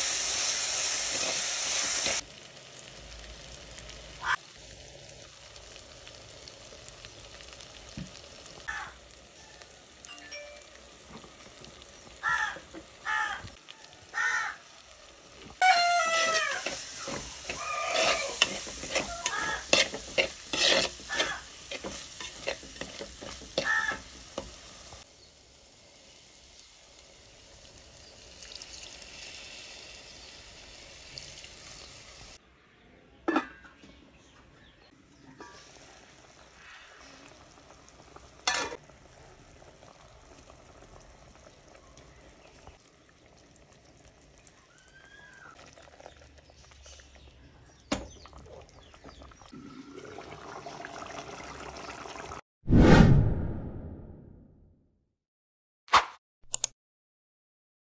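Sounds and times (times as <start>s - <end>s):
masala frying in a pot: 0.0s - 32.4s, 33.4s - 52.4s
metal spoon scraping clay pot: 15.9s - 23.7s
metal lid clanking: 33.3s - 33.8s, 38.5s - 38.8s.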